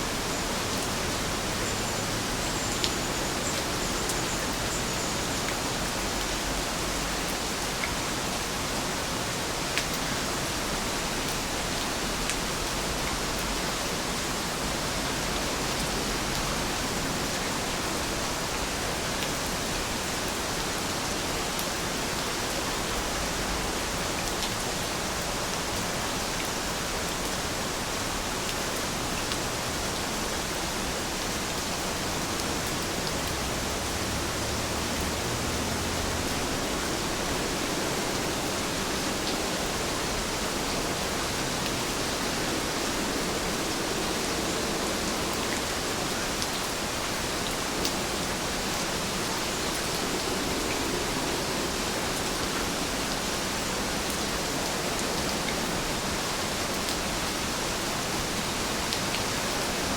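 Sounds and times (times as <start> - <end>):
dense rainfall hiss: 0.0 - 59.9
faint raindrop ticks: 2.6 - 5.6, 9.8 - 10.1.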